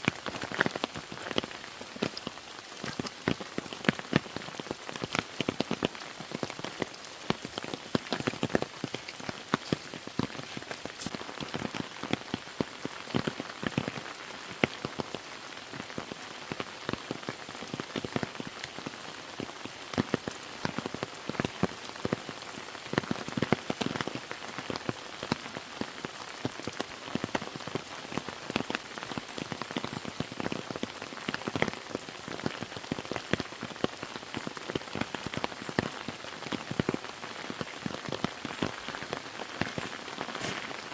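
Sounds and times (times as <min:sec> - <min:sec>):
raindrops ticking on surfaces: 0:00.0 - 0:40.9
steady rain: 0:00.0 - 0:40.9.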